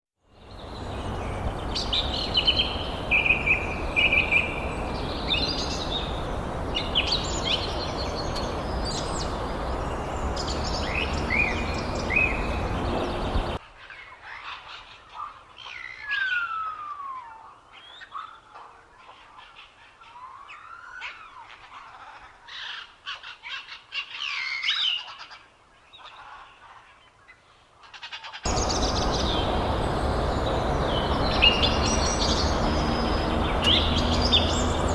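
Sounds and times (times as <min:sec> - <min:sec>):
steady rushing noise: 0:00.4 - 0:13.6, 0:28.5 - 0:34.9
birds chirping and calling: 0:00.4 - 0:34.9.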